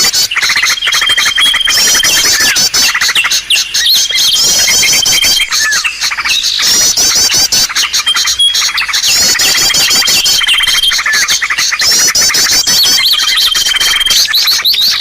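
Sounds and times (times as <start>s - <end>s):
songbirds chirping trills: 0.0s - 15.0s
long whistled bird note: 0.8s - 2.7s, 9.5s - 11.1s.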